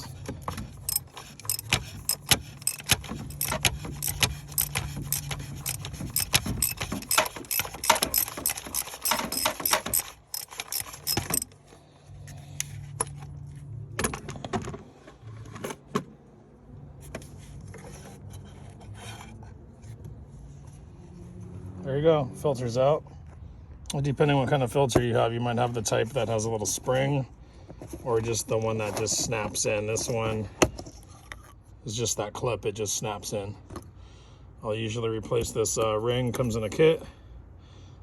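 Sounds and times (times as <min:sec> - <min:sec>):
socket ratchet clicking: 0:00.8 - 0:11.5
metallic clicks and knocks: 0:00.8 - 0:11.6.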